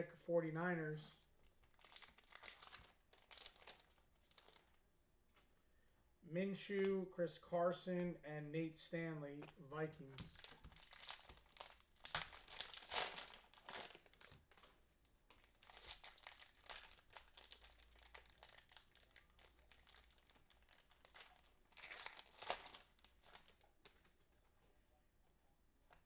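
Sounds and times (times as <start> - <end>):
plastic wrapper crinkling and tearing: 1.4 - 4.8, 9.4 - 24.1.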